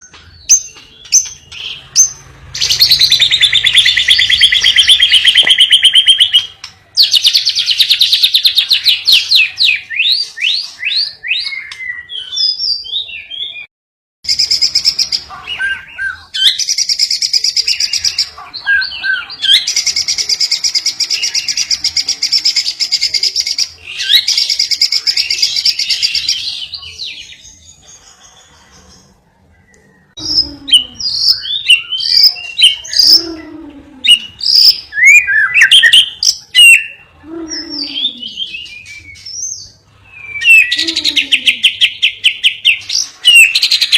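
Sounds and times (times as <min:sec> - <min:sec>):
birds trilling and chattering: 0:00.0 - 0:13.7, 0:14.3 - 0:43.9.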